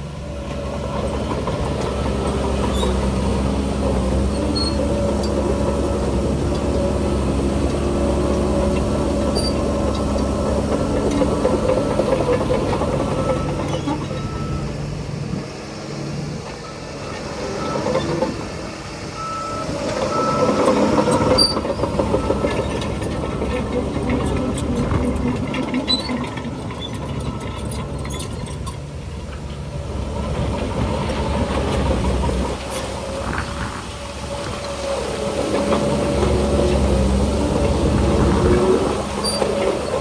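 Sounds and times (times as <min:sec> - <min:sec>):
heavy diesel machinery running: 0:00.0 - 0:40.0
reversing alarm beeping: 0:13.1 - 0:14.7, 0:16.6 - 0:18.2, 0:19.2 - 0:22.7.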